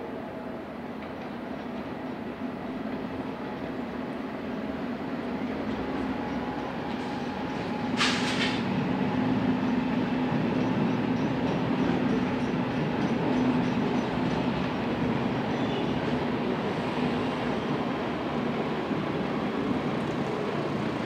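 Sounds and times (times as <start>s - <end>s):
freight train rumbling on rails: 0.0s - 21.0s
brief hiss: 8.0s - 8.7s.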